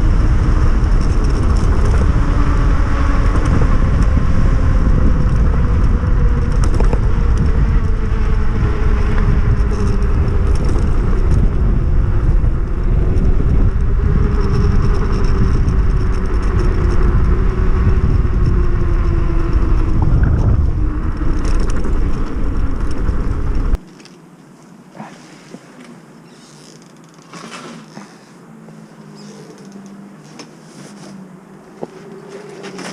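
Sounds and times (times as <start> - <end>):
electric motor whining: 0.0 - 23.8
wind rumble: 0.0 - 23.9
knobby tyres rolling: 0.0 - 32.9.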